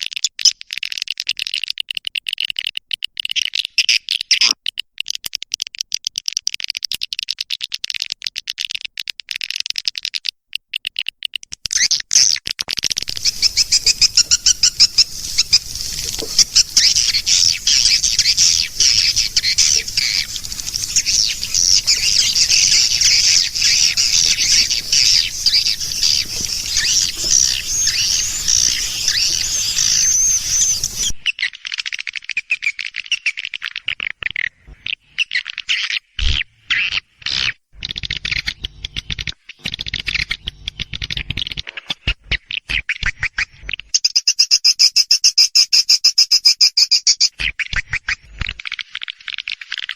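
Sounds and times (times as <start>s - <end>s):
swiftlets twittering: 12.9s - 31.4s, 37.8s - 41.6s
faint low hum: 13.0s - 31.2s.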